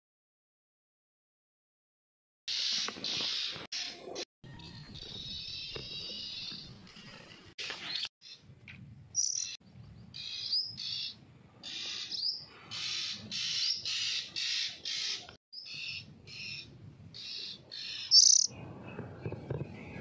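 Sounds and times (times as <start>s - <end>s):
fledgling bird chirping: 9.1s - 20.0s.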